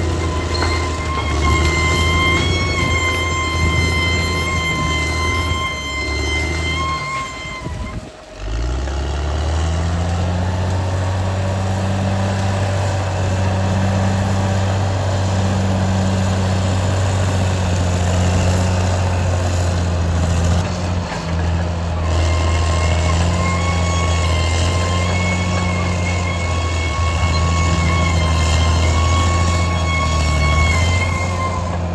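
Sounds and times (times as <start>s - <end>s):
high steady machine whine: 0.0s - 8.6s, 20.6s - 31.9s
bulldozer diesel engine droning: 0.0s - 31.9s.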